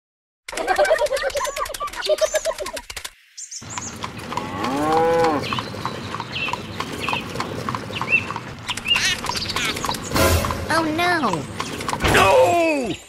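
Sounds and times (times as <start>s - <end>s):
hooves clip-clopping: 3.6s - 12.2s
cow mooing: 4.3s - 5.5s.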